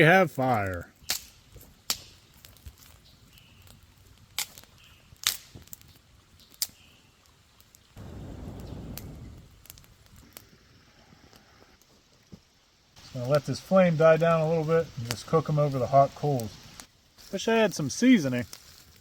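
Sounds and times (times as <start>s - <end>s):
campfire crackling and popping: 0.0s - 19.0s
low rushing noise: 8.0s - 9.8s.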